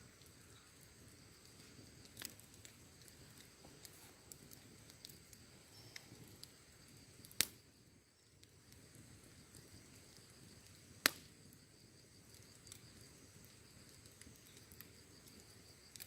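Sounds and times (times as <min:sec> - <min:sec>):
wood fire crackling: 0:00.0 - 0:16.0
loud fire pop: 0:11.0 - 0:11.4.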